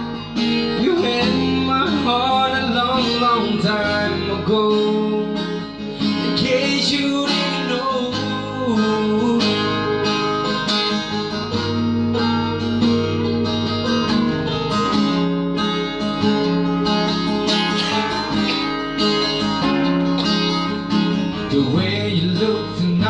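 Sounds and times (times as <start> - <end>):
country pop ballad guitar: 0.0 - 23.0.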